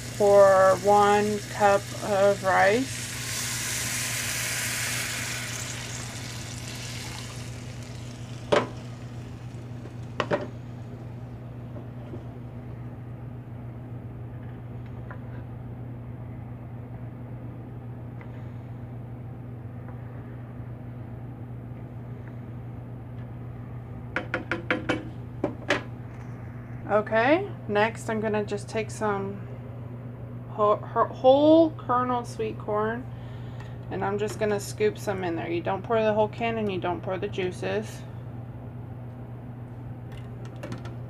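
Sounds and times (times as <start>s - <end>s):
water sizzling in hot pan: 0.0s - 10.8s
steady low hum: 0.0s - 41.0s.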